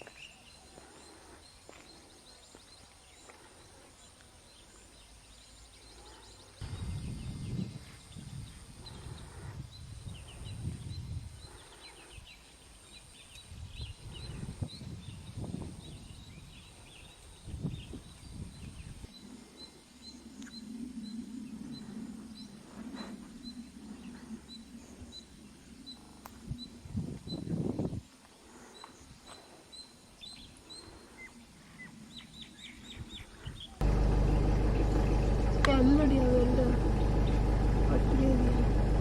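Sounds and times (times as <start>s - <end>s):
low rumble: 33.8s - 39.0s
steady low hum: 33.8s - 39.0s.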